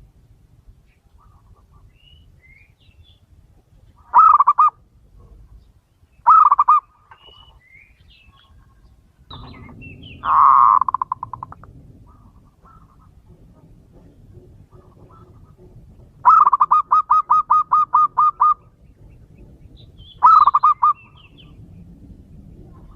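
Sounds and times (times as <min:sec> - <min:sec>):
dove cooing: 0:04.1 - 0:05.4, 0:06.3 - 0:07.4, 0:08.5 - 0:19.5, 0:20.2 - 0:21.6
faint high bird chirps: 0:05.7 - 0:11.5.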